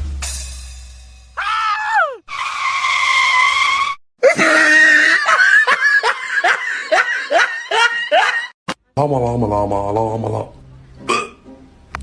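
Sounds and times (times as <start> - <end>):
shrill held scream: 1.4 - 4.0.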